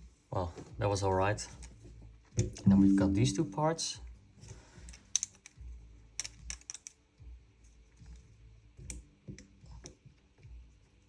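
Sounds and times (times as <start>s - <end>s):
small gun parts clicking: 6.2s - 7.0s.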